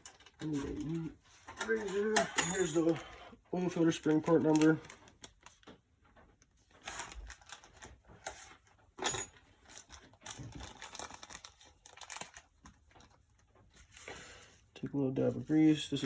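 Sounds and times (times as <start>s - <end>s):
packaging crinkling and tearing: 6.9s - 7.9s, 9.7s - 13.2s.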